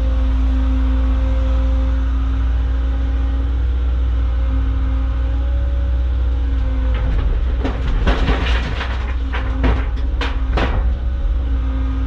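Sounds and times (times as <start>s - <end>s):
excavator diesel engine running: 0.0s - 12.0s
dirt and rocks tumbling into truck: 6.6s - 11.7s.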